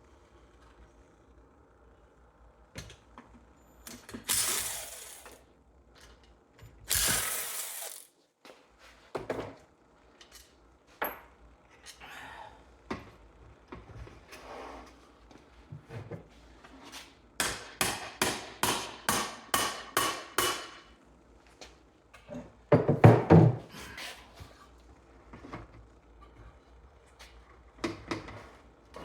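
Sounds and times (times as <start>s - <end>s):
ratchet clicking: 6.9s - 8.1s.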